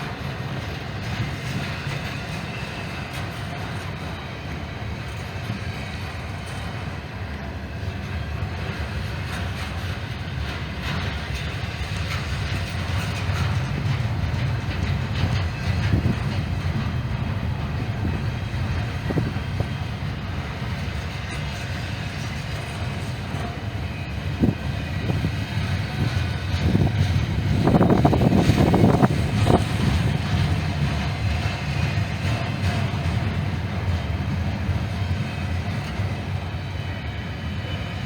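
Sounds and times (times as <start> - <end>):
freight train rumbling on rails: 0.0 - 38.0
train wheel clicks: 8.4 - 36.4.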